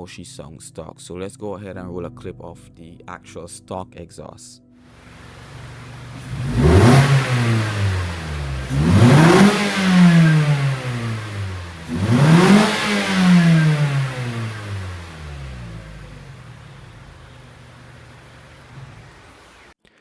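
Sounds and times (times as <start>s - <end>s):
car engine revving: 4.9s - 19.8s.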